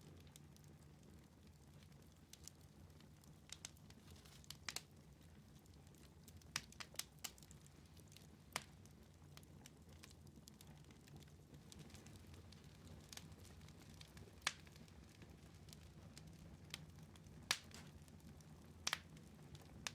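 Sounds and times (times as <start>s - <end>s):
wood fire crackling: 0.0s - 19.9s
sharp pops of fire: 14.4s - 14.8s, 17.5s - 18.0s, 18.8s - 19.2s.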